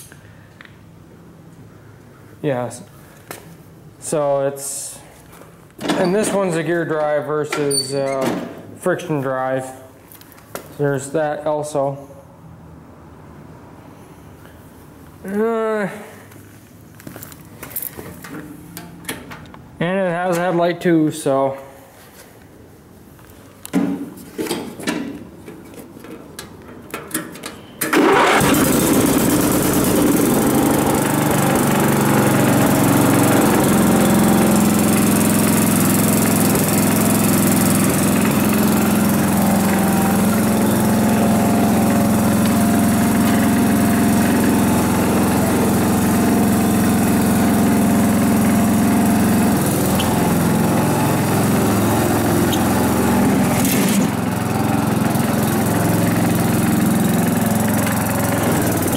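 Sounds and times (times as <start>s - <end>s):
riding mower engine running: 27.9s - 58.9s.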